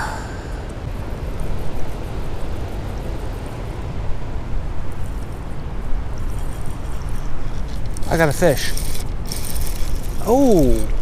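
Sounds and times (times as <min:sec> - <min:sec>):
fishing reel ticking: 0:06.3 - 0:11.0.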